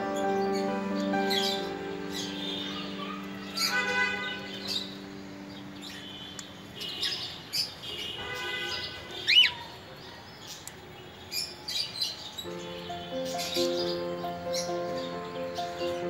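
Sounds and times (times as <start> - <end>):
background music: 0.0 - 6.8, 12.5 - 16.0
bird chirps and calls: 0.4 - 16.0.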